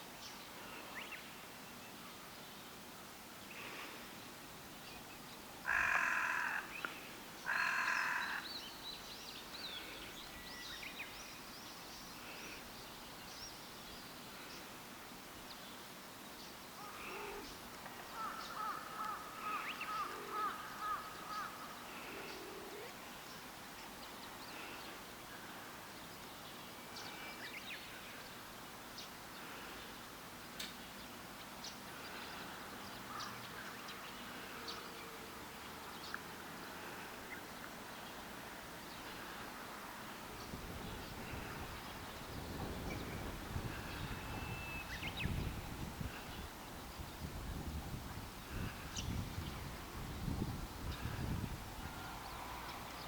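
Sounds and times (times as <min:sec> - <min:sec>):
harsh caw-like bird calls: 0:05.6 - 0:08.6, 0:16.8 - 0:22.9, 0:33.1 - 0:33.6.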